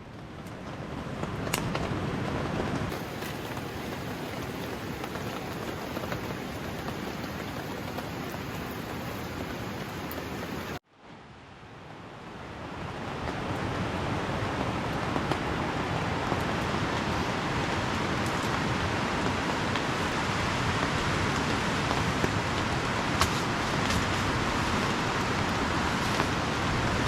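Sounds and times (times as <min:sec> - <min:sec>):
heavy rain falling: 0:01.2 - 0:10.8, 0:12.8 - 0:27.0
faint ticks: 0:03.1 - 0:10.7.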